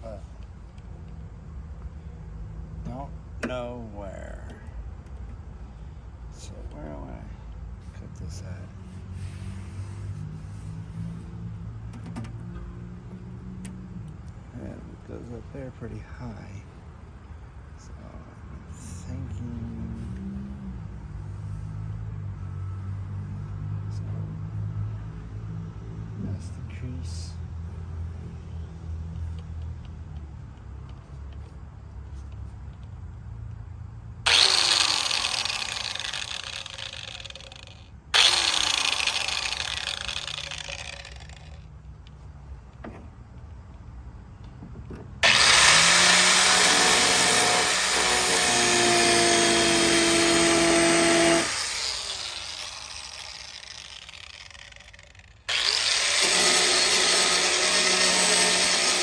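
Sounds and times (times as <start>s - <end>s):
power tool cutting sheet metal: 34.3s - 41.6s, 45.2s - 59.0s.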